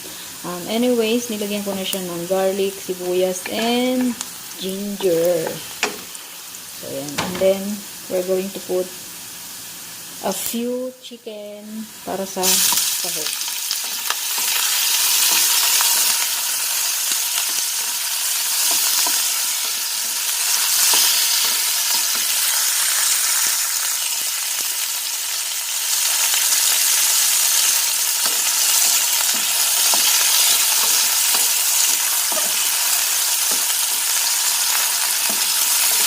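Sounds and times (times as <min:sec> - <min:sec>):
chicken sizzling in hot oil: 0:11.9 - 0:36.0.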